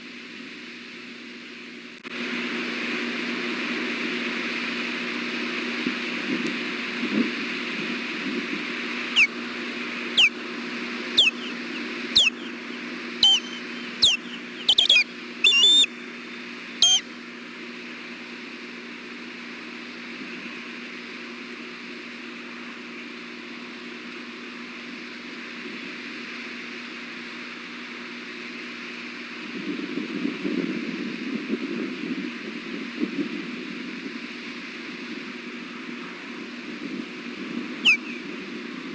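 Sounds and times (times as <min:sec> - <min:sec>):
windy hiss: 0:00.0 - 0:38.9
low hum: 0:02.9 - 0:20.6
osprey alert whistles: 0:11.2 - 0:12.6, 0:13.2 - 0:15.9, 0:16.8 - 0:17.0, 0:37.8 - 0:38.2.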